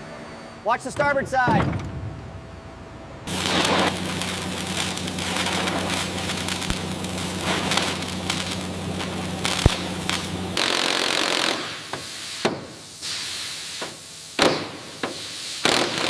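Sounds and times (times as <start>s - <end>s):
lifting machinery humming: 2.6s - 10.8s
crackling and crunching: 3.3s - 11.6s
sharp crack: 3.3s - 11.8s.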